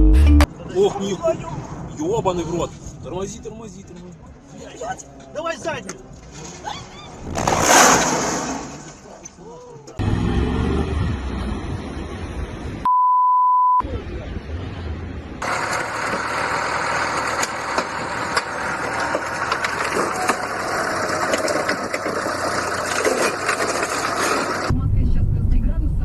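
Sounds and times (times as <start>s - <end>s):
car engine: 6.2s - 12.9s, 13.8s - 26.0s
censor bleep: 12.8s - 13.9s.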